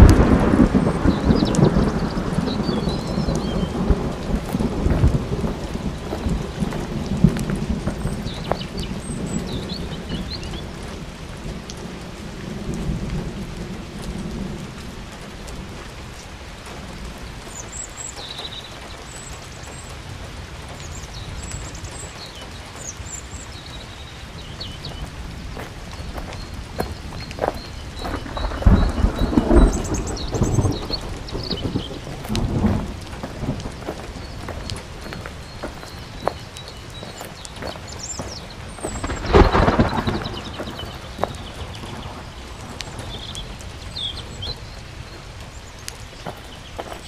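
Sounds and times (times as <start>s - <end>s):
rolling thunder: 0.0s - 15.8s, 25.0s - 36.4s, 38.0s - 44.6s
steady rain: 0.0s - 47.0s.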